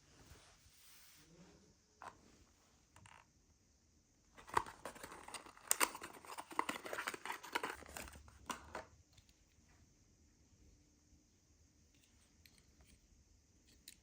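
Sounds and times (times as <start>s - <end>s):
packaging crinkling and clicking: 4.4s - 8.9s.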